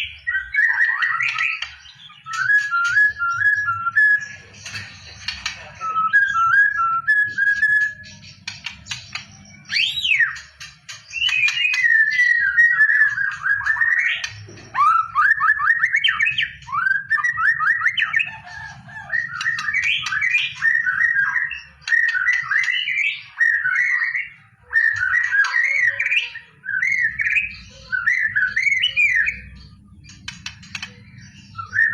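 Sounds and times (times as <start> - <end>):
bird singing whistled warbles: 0.0 - 31.9.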